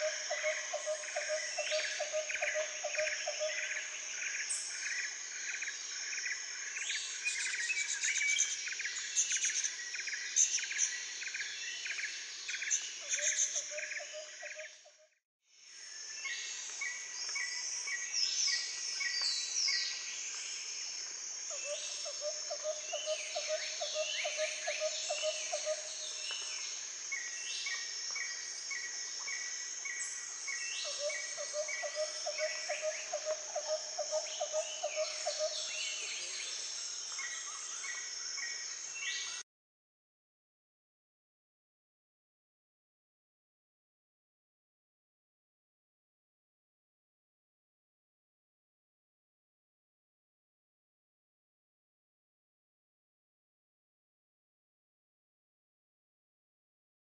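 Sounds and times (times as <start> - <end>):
insects trilling: 0.0 - 14.8, 15.7 - 39.4.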